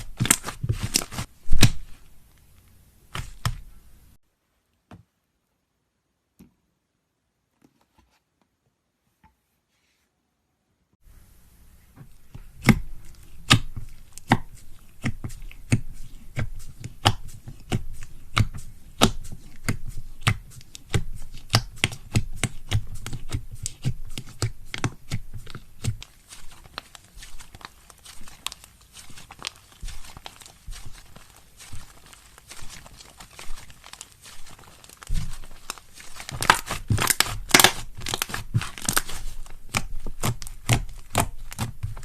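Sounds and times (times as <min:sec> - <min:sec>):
slime popping and crackling: 0:00.0 - 0:02.1, 0:12.5 - 0:42.0.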